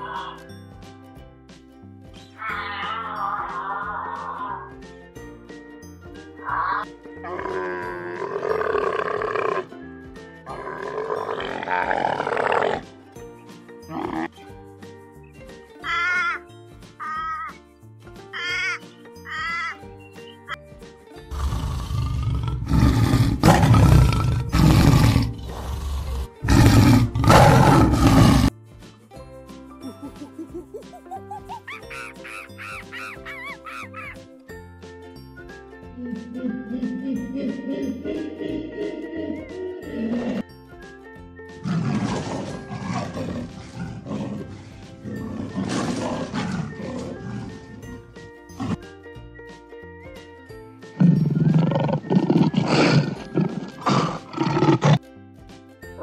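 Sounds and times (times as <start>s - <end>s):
background music: 0.0s - 56.0s
tiger roaring and growling: 6.5s - 9.8s, 10.5s - 13.0s, 13.9s - 14.3s, 21.3s - 28.5s, 39.3s - 40.5s, 41.6s - 48.9s, 51.0s - 55.0s.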